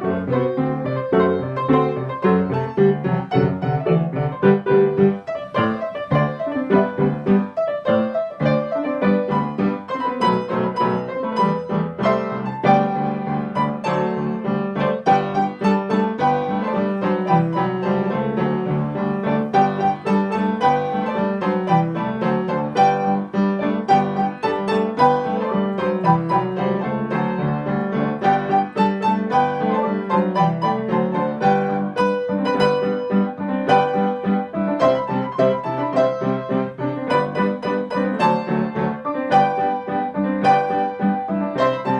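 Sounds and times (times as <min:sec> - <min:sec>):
piano playing: 0:00.0 - 0:41.9.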